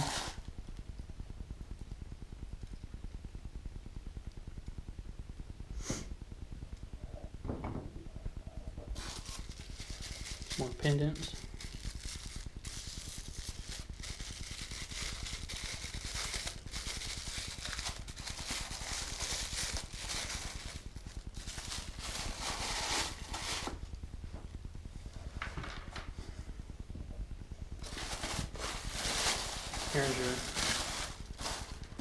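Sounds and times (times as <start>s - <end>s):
packaging rustling: 0.0s - 0.4s, 9.0s - 23.8s, 27.8s - 32.0s.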